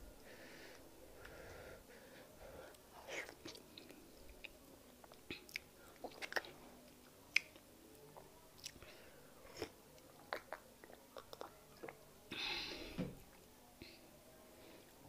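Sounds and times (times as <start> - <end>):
wet chewing clicks and smacks: 3.3 - 7.7, 9.6 - 12.0.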